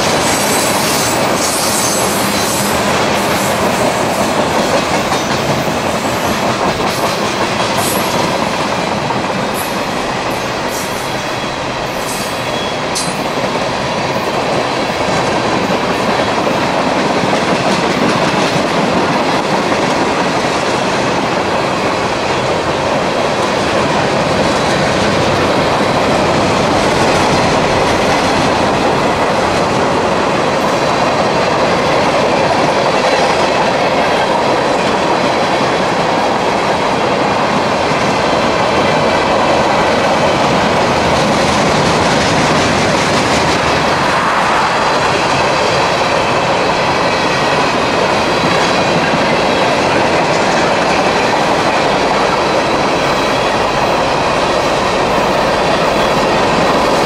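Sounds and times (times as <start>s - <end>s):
freight train wheels clattering: 0.0s - 57.0s.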